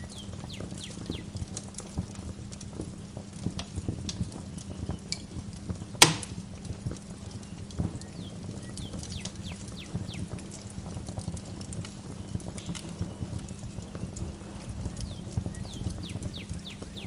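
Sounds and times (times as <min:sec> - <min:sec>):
birds chirping: 0:00.0 - 0:02.4, 0:06.8 - 0:10.8, 0:12.3 - 0:17.0
wood fire crackling: 0:00.0 - 0:17.0.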